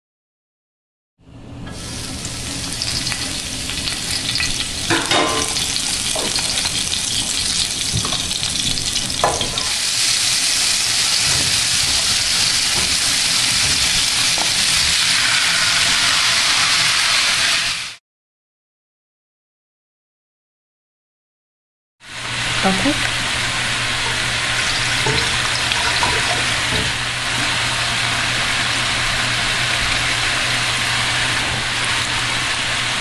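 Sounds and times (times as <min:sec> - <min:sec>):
oil sizzling in a frying pan: 0:01.7 - 0:18.0, 0:22.0 - 0:33.0
utensils knocking on a pan: 0:04.9 - 0:06.7, 0:07.9 - 0:09.8, 0:11.1 - 0:14.7, 0:25.0 - 0:27.0.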